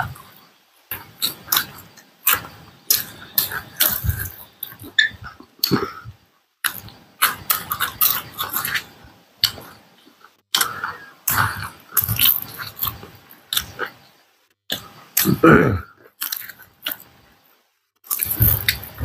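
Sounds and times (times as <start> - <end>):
wet chewing: 0.9 - 14.0, 16.0 - 17.1, 18.0 - 19.0.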